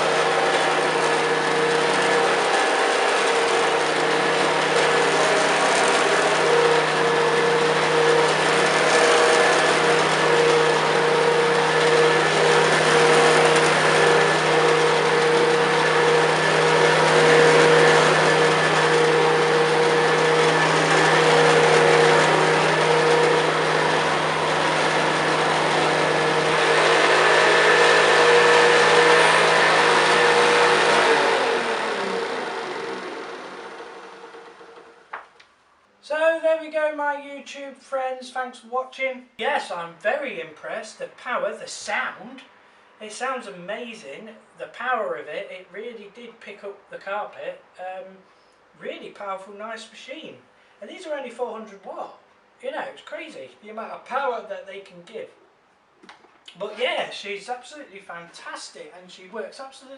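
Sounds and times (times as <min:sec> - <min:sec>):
vacuum cleaner running on carpet: 0:00.0 - 0:35.0.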